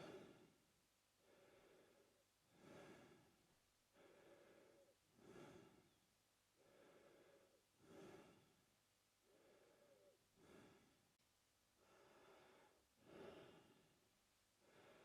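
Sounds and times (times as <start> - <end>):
man breathing through mouth: 0.0 - 0.5, 1.3 - 3.3, 4.0 - 6.0, 6.6 - 8.5, 11.8 - 13.9.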